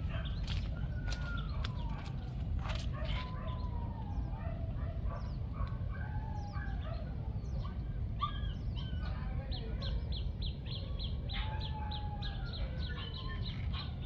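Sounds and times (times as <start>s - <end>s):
birds chirping and calling: 0.0s - 2.1s.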